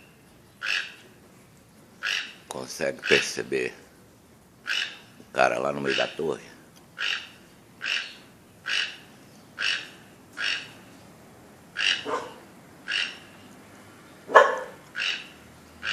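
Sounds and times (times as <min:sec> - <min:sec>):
bird calling: 0:00.0 - 0:01.2, 0:02.0 - 0:03.5, 0:04.6 - 0:05.2, 0:05.8 - 0:06.4, 0:07.0 - 0:11.0, 0:11.7 - 0:13.6, 0:14.3 - 0:15.9
low bird call: 0:04.6 - 0:05.2, 0:07.0 - 0:10.9, 0:11.8 - 0:13.5, 0:14.4 - 0:15.9.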